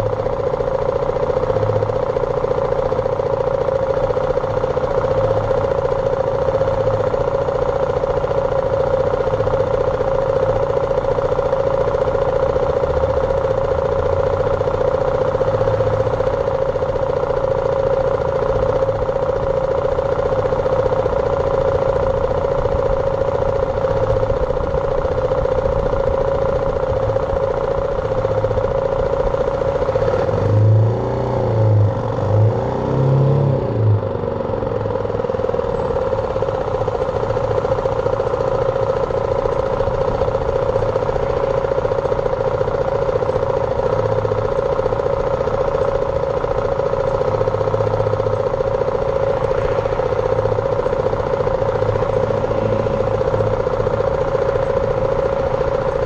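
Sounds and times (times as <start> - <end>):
motorcycle engine droning: 0.0 - 56.0.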